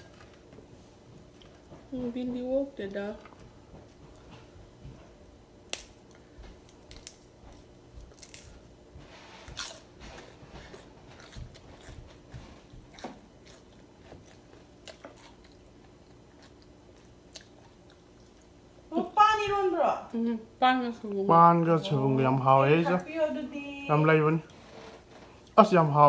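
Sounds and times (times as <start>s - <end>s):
faint steady hum: 0.0s - 26.0s
person chewing food: 5.9s - 18.6s
crisp crunches of vegetables: 6.6s - 8.8s.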